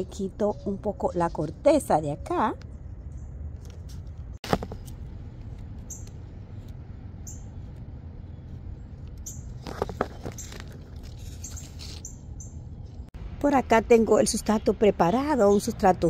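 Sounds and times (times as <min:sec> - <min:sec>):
small birds chirping: 0:00.0 - 0:03.6, 0:07.2 - 0:13.1
low background rumble: 0:00.0 - 0:16.0.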